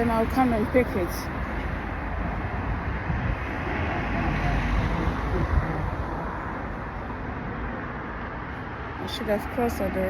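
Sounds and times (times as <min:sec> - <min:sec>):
road traffic passing: 0:00.0 - 0:10.0
wind on microphone: 0:02.0 - 0:07.1.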